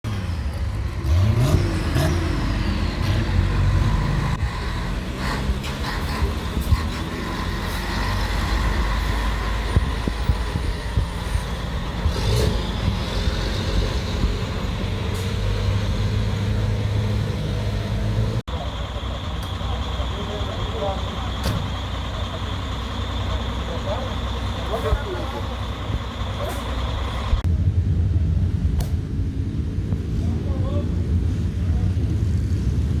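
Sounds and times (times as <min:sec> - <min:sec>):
diesel truck engines revving: 0:00.0 - 0:33.0
street traffic noise: 0:00.0 - 0:33.0.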